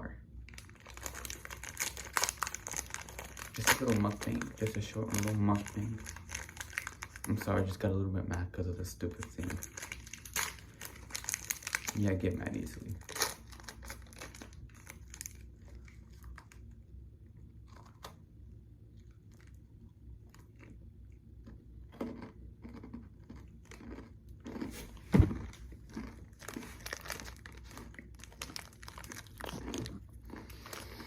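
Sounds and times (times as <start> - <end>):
granola bar crunching: 0.6 - 7.7, 21.4 - 31.0
loud thump: 24.8 - 25.6.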